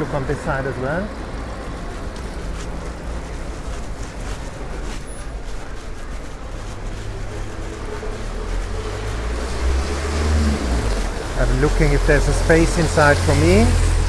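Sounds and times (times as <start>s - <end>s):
vehicle engine approaching: 0.0s - 14.0s
heavy rain falling: 6.4s - 14.0s.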